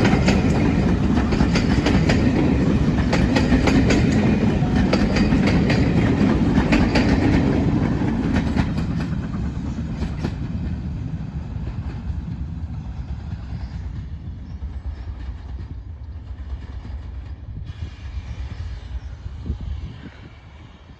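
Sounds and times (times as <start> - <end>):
wheels clicking over rail joints: 0.0 - 10.7
steam train rumbling past: 0.0 - 20.9.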